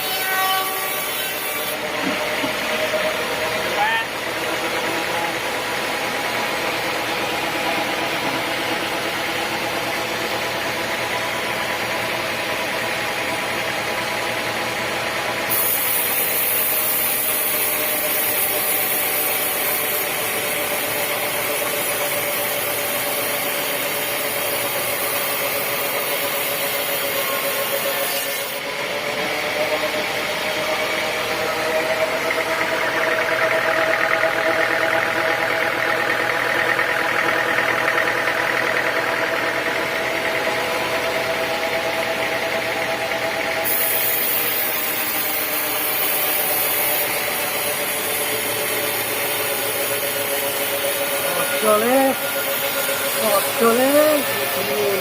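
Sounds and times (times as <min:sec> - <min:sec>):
sawmill machinery humming: 0:00.0 - 0:55.0
loud high hiss: 0:15.5 - 0:28.5, 0:43.6 - 0:55.0.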